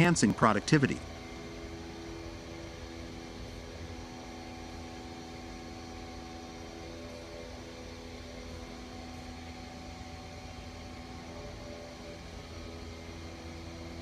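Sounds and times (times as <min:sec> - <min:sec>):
machine tool humming: 0:00.0 - 0:14.0.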